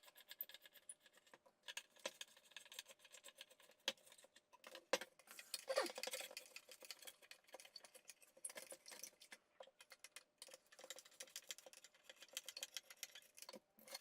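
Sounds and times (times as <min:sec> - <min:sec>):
small tools clicking and rattling: 0:00.0 - 0:14.0.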